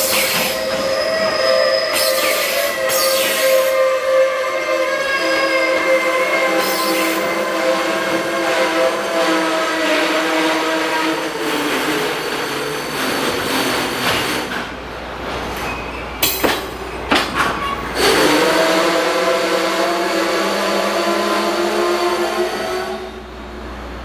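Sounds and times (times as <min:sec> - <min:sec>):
train wheels squealing: 0:00.0 - 0:14.3, 0:15.5 - 0:18.7
sharp metallic clanks: 0:16.2 - 0:17.6.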